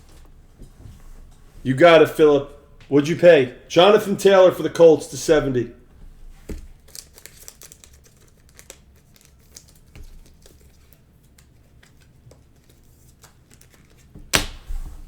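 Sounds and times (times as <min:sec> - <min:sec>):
cards being flipped through: 0:06.5 - 0:14.7.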